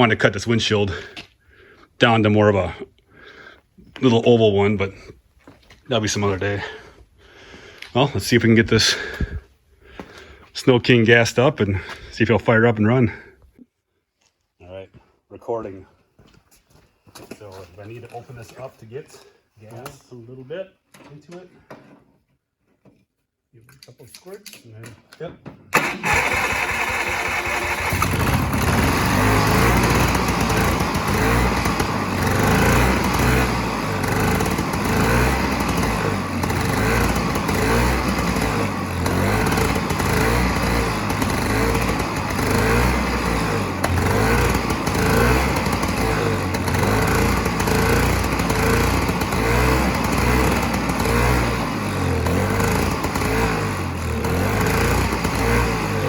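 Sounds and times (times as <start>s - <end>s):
two-stroke snowmobile engine running: 25.8s - 56.0s.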